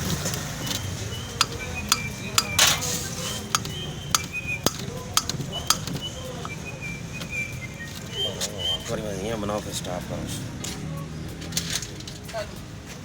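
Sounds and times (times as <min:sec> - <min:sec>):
metal scraping: 0:00.2 - 0:05.8
metal tools clinking: 0:00.2 - 0:06.5.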